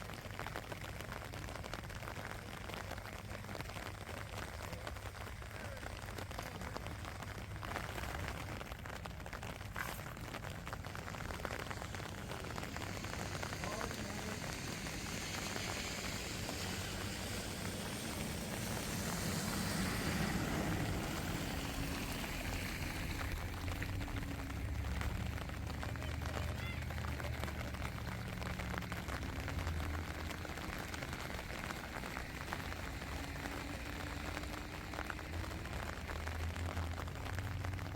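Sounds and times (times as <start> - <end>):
steady rain: 0.0 - 37.9
low rumble: 6.8 - 26.4.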